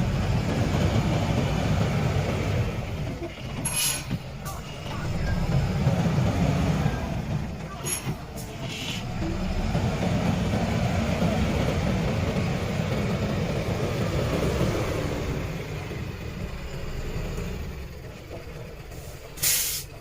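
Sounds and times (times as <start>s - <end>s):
truck engine rumbling: 0.0s - 20.0s
air brake hiss: 3.6s - 4.1s, 7.9s - 9.0s, 18.9s - 20.0s.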